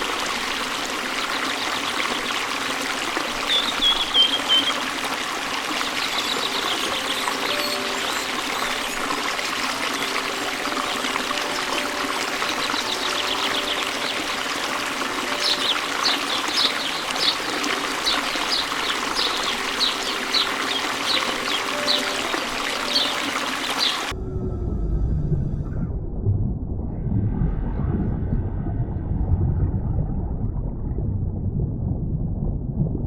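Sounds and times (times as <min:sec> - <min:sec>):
water trickling and splashing: 0:00.0 - 0:24.2.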